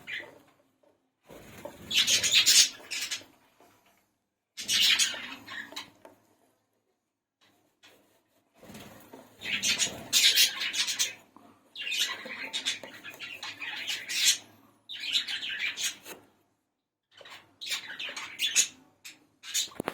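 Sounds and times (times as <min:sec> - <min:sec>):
budgerigars chattering: 0:01.9 - 0:03.2, 0:04.6 - 0:05.9, 0:09.4 - 0:11.2.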